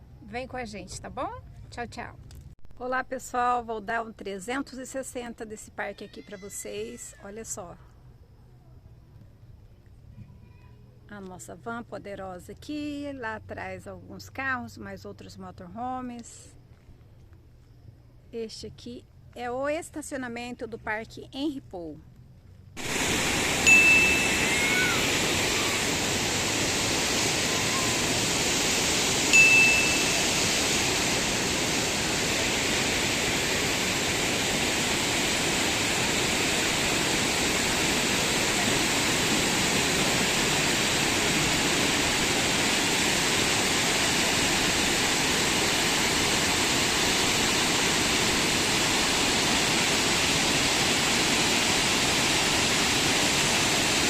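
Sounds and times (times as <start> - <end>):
rushing flowing water: 22.8 - 54.0.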